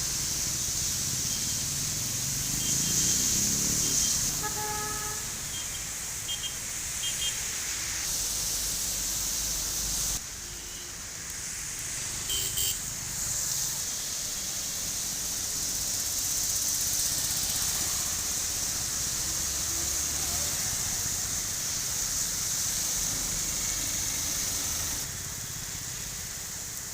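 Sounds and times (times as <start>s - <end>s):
rain hiss: 0.0s - 26.9s
wet traffic: 0.0s - 26.9s
vehicle horn toots: 2.6s - 7.3s, 12.3s - 12.8s.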